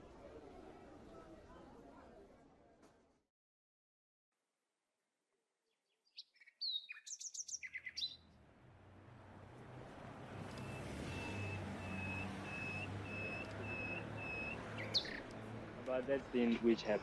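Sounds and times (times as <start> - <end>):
songbirds chirping: 5.6 - 8.4, 9.5 - 17.0.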